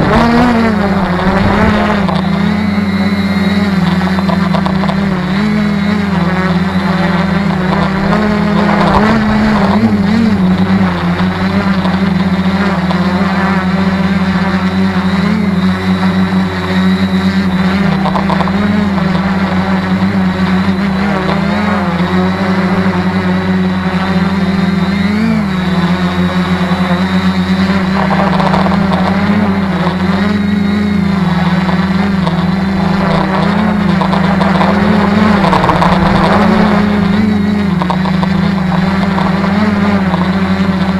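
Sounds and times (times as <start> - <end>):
gusty wind: 0.0 - 13.0
drone propellers humming: 0.0 - 40.9.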